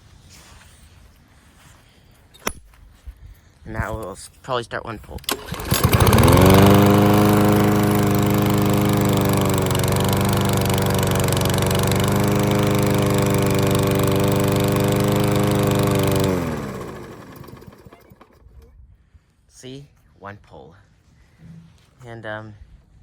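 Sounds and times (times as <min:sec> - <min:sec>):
engine shutting off: 0:05.2 - 0:18.5
lawn mower engine running: 0:05.2 - 0:18.5.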